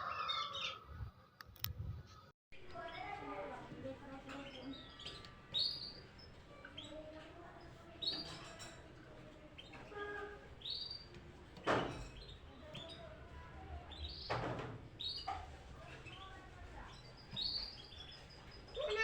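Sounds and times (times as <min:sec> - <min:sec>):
songbird chirping: 0:02.6 - 0:08.8, 0:11.8 - 0:19.0.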